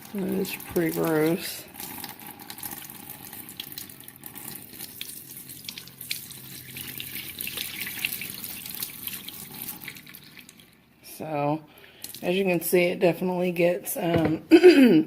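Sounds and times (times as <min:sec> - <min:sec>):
water pouring into a sink: 0:00.0 - 0:10.9.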